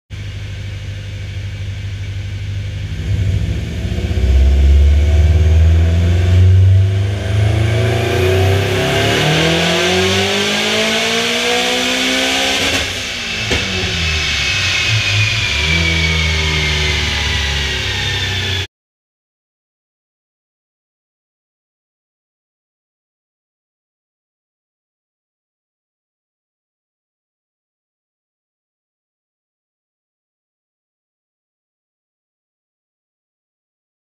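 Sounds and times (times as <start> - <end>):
car engine revving: 2.0 - 18.7
turbo whistle: 13.0 - 18.7.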